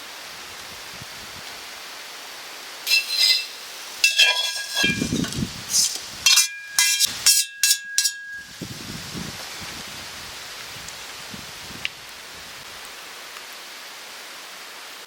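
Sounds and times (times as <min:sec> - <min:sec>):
hard objects clinking and rattling: 0:02.9 - 0:08.5.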